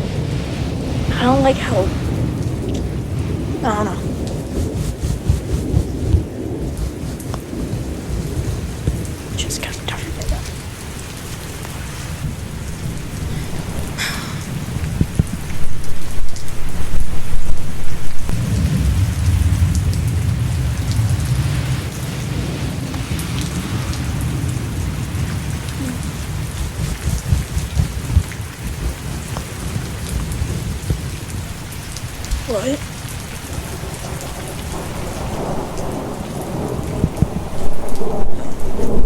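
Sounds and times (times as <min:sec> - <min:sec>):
heavy rain: 0:00.0 - 0:39.0
thunderclap with deep rumble: 0:00.0 - 0:39.0.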